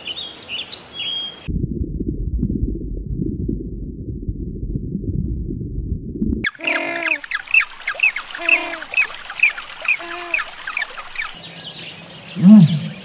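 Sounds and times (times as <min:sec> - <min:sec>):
low rumble: 0:01.5 - 0:06.4
lower bird call: 0:06.4 - 0:11.4
short high bird chirps: 0:06.4 - 0:11.4.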